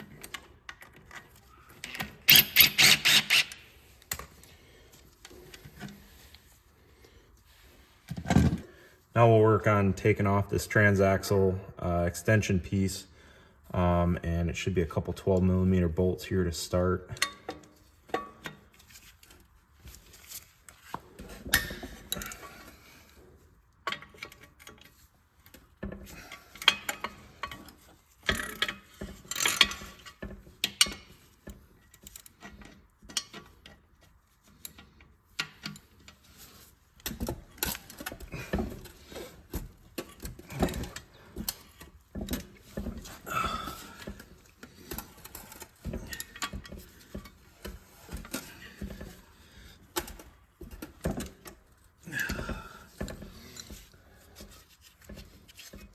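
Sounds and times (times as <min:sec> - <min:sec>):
hand ratchet clicking: 0:02.3 - 0:04.2
metal tools clinking: 0:34.5 - 0:55.9.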